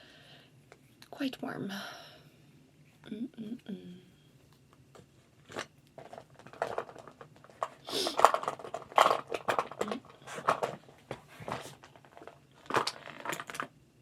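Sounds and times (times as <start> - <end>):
small objects rustling and clicking: 4.9 - 13.8.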